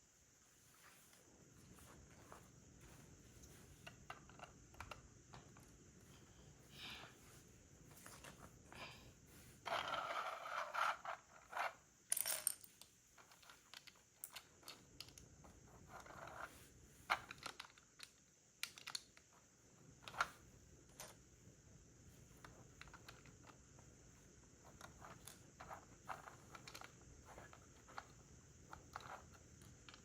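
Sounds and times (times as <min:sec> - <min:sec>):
plastic pieces clicking and rattling: 0:17.2 - 0:19.2.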